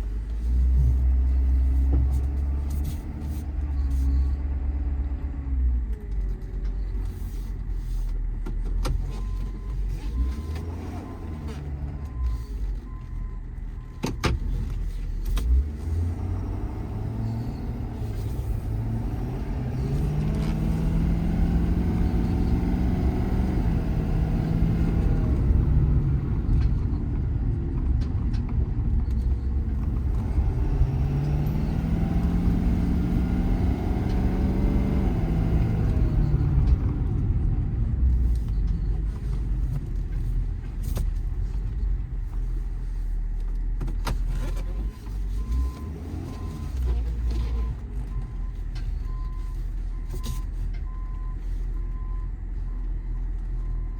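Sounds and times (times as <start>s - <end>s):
diesel truck engine rumble: 0.0s - 53.9s.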